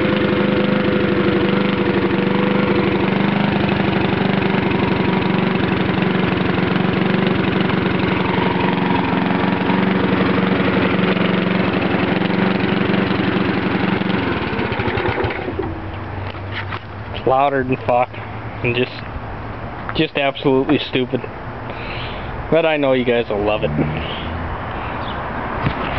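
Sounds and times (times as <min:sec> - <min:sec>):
small engine running loud: 0:00.0 - 0:16.8, 0:23.4 - 0:25.9.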